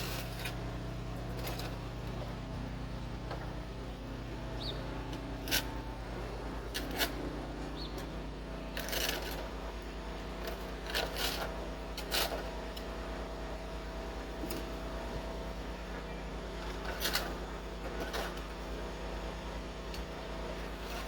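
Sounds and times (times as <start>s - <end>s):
snow shovel scraping snow: 0.0s - 0.6s, 1.3s - 1.9s, 5.4s - 7.9s, 8.8s - 9.6s, 10.4s - 12.5s, 20.6s - 21.0s
steady low hum: 0.0s - 21.0s.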